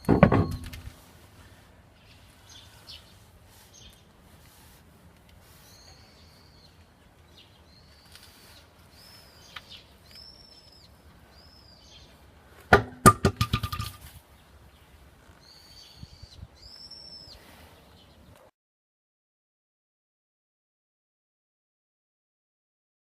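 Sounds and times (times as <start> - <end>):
bird chirps: 5.5 - 12.2, 13.7 - 18.3.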